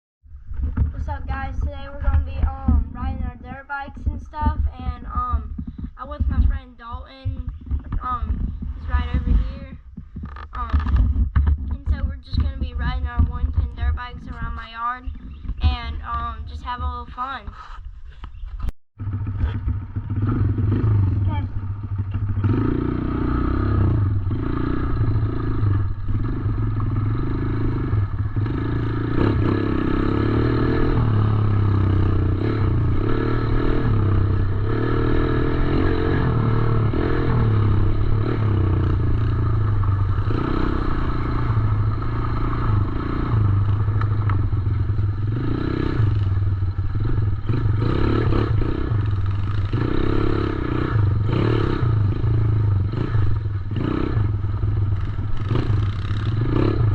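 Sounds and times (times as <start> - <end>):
dirt bike engine revving: 19.0 - 56.9.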